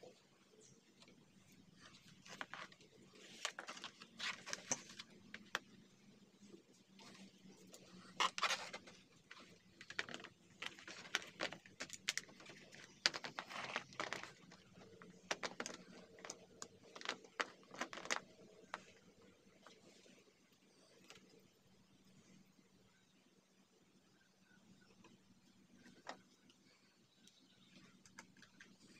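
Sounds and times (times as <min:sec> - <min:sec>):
plastic rustling: 0:01.8 - 0:05.7, 0:07.0 - 0:20.1.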